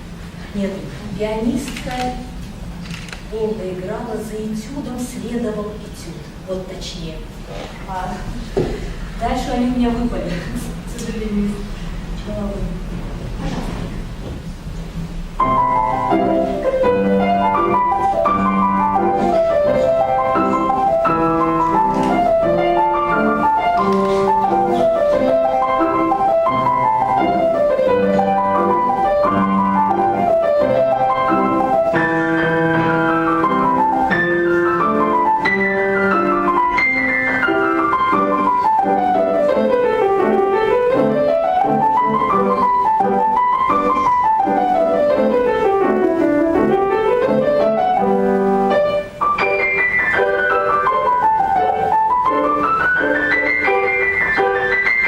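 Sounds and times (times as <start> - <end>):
solo piano: 11.7 - 55.0.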